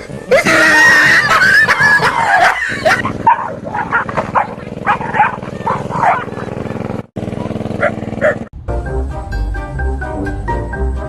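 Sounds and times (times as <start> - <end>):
dog barking rapidly: 1.1 - 8.5.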